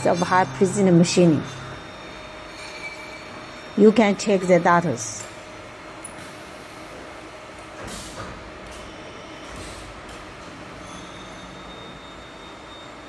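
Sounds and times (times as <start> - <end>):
faint high whine: 0.0 - 6.2, 10.8 - 13.0
machine humming: 0.0 - 7.8.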